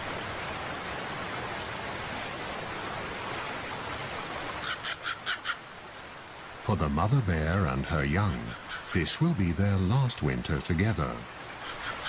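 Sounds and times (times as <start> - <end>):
forest ambience hiss: 0.0 - 12.0.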